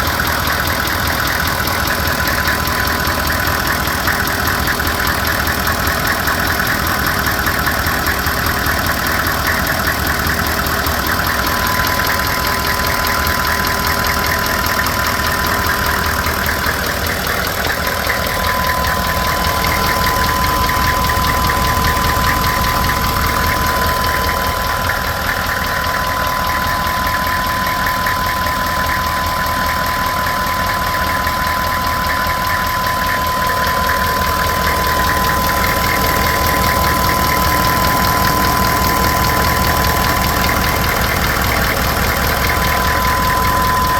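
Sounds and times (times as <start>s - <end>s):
engine knocking: 0.0s - 43.9s
steady high whine: 10.0s - 43.9s.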